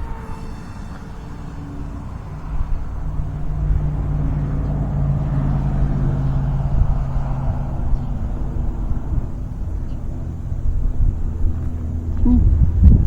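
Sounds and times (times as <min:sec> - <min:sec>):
model plane electric motor drone: 0:00.0 - 0:07.2
wind buffeting microphone: 0:00.0 - 0:13.0.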